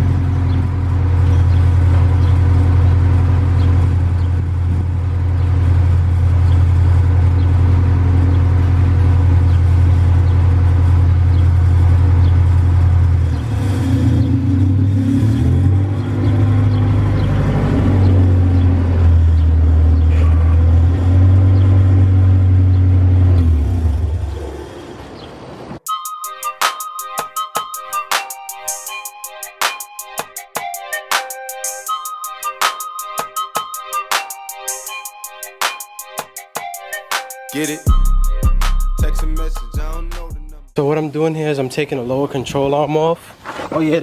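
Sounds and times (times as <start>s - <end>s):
car engine idling and revving: 0.0s - 25.8s.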